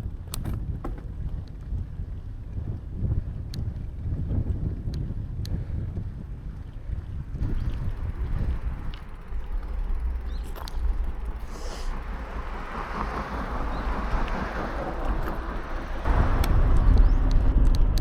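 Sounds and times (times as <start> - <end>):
wind rumbling on microphone: 0.0 - 18.0
light clicks: 7.4 - 16.6
road hiss: 8.0 - 16.4.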